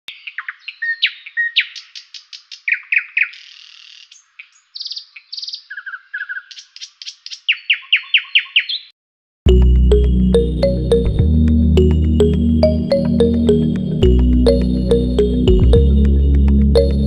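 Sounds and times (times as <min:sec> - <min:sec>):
songbird trilling chirps: 0:00.1 - 0:08.9.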